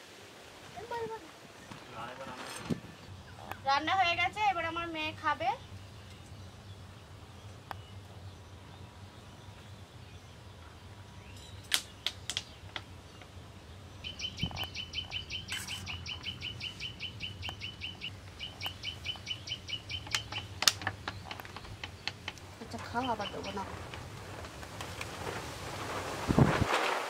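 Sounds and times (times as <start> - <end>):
bird chirping rapidly: 11.2 - 23.7.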